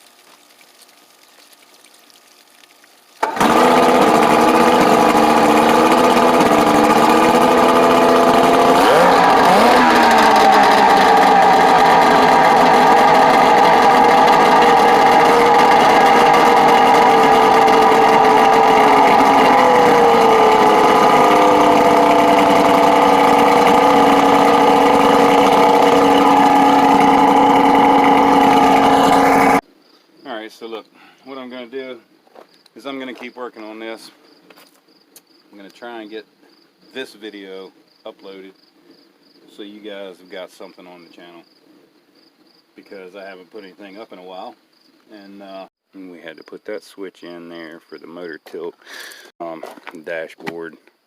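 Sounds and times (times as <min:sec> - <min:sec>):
outboard motor running: 0:03.2 - 0:29.6.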